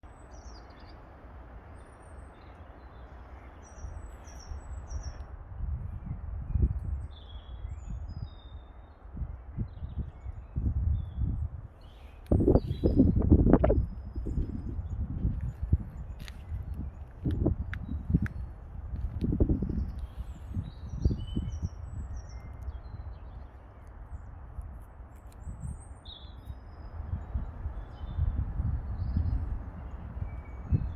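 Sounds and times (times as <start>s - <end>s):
small birds chirping: 0.1s - 5.3s, 7.0s - 30.9s
birds chirping: 25.3s - 30.9s.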